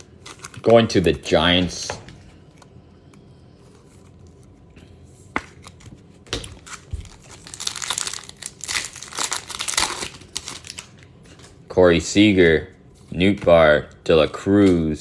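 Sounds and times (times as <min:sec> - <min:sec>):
foil wrapper tearing and crinkling: 0:06.6 - 0:11.0.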